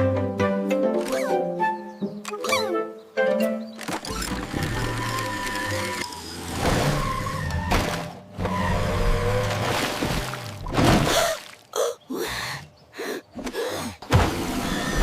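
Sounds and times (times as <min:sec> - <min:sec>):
cartoon background music: 0:00.0 - 0:06.0.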